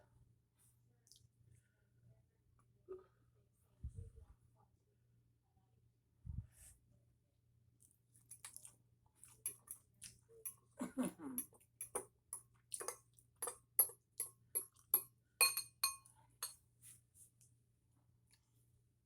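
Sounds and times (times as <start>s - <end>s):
tableware clinking: 12.8s - 14.8s, 15.4s - 16.6s.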